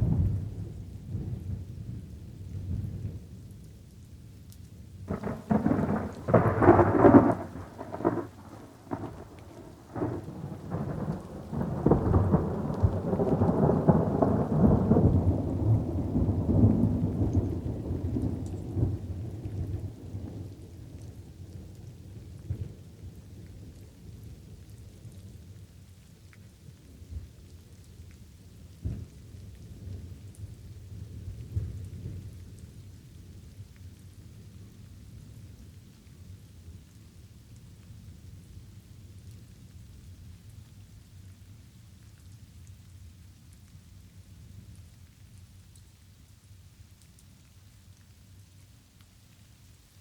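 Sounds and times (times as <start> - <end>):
thunder cracking and rumbling: 0.0 - 3.3, 5.1 - 21.5
light rain falling: 0.0 - 50.0.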